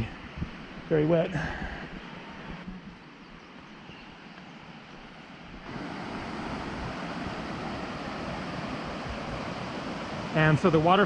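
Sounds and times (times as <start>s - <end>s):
waterfall rushing: 5.6s - 11.0s.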